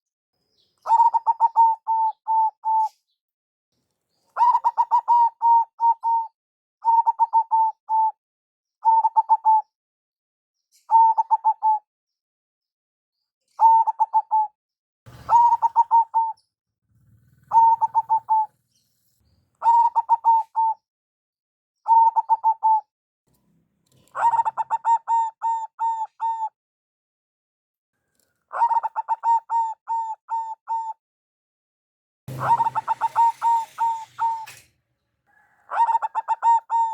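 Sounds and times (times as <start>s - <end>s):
dove cooing: 0.8s - 3.0s, 4.4s - 8.1s, 8.8s - 9.7s, 10.9s - 11.8s, 13.6s - 14.5s, 15.1s - 18.8s, 19.6s - 20.8s, 21.9s - 22.8s, 24.0s - 26.5s, 28.5s - 31.0s, 32.3s - 36.9s.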